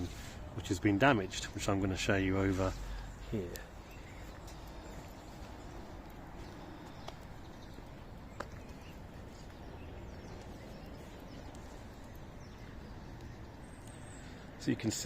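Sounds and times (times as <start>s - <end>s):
steady low rumble: 0.0s - 14.2s
faint light clicks: 2.9s - 9.6s.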